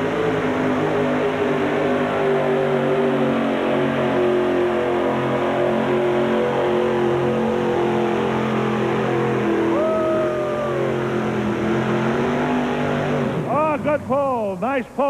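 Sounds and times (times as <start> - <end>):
truck engine at full throttle: 0.0 - 15.0
high tone rising and falling: 6.2 - 14.0.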